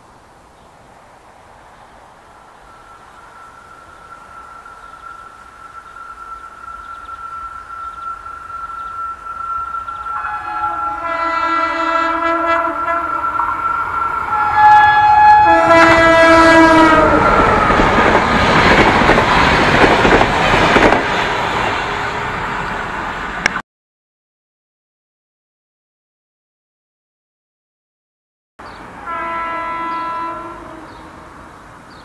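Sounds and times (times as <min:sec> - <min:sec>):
locomotive horn blasts: 0:05.7 - 0:17.7, 0:29.0 - 0:31.4
passenger coaches running by: 0:15.4 - 0:23.5.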